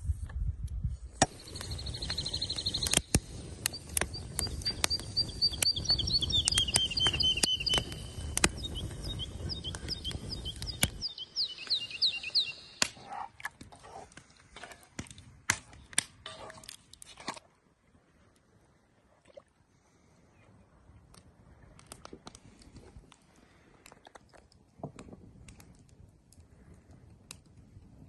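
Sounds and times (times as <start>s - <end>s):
sharp clicks: 1.2s - 11.8s
songbirds singing: 1.3s - 13.2s.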